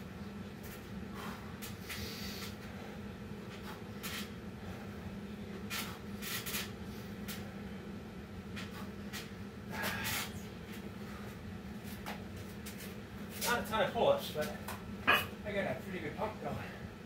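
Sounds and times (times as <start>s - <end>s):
steady low hum: 0.0s - 17.0s
person breathing heavily: 1.1s - 6.2s, 9.6s - 11.5s.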